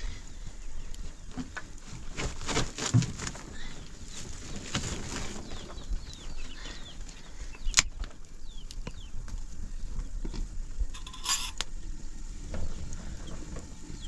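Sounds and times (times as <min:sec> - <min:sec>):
bird chirping: 0:05.4 - 0:07.8.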